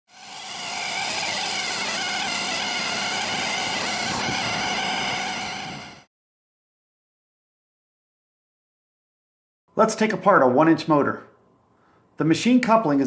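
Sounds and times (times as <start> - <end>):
air motor whining: 0.1 - 6.1.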